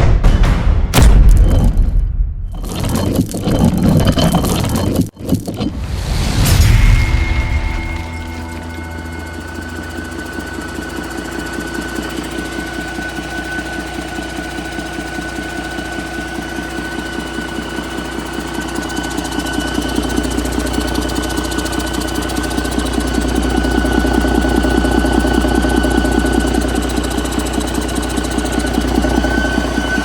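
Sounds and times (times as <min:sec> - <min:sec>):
diesel engine idling: 0:08.5 - 0:30.0.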